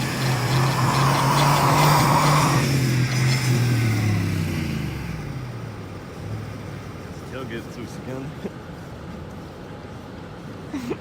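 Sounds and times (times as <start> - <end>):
tyres spinning on ice: 0.0 - 3.6
vehicle engine revving: 0.0 - 6.7.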